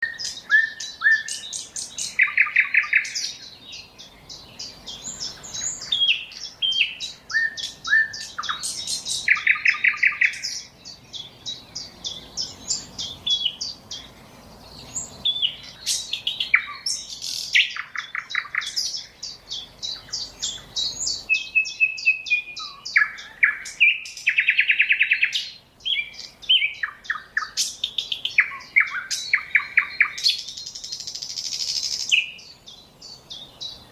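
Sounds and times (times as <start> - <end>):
nightingale singing trills: 0.0 - 33.9.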